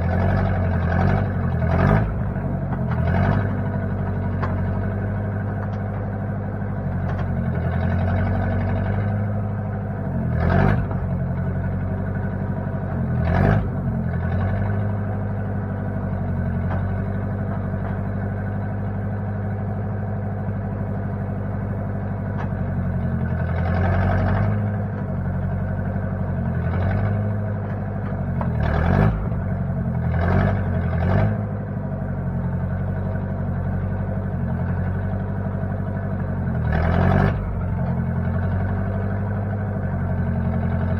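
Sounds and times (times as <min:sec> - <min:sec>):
backhoe engine running: 0:00.0 - 0:40.9.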